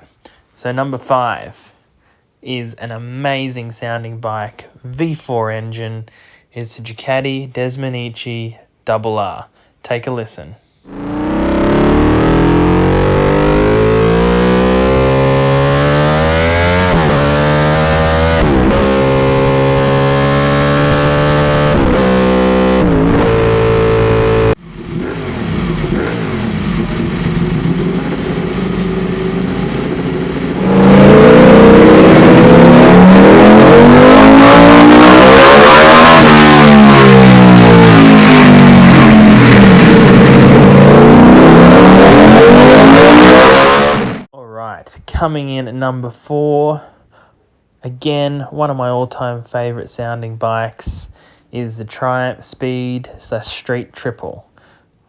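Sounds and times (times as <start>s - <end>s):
motorcycle engine revving: 10.9s - 44.3s.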